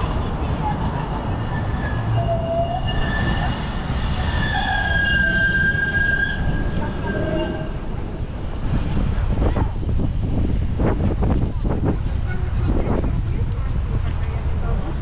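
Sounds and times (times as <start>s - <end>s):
steel wheels squealing on rails: 0.0s - 8.2s.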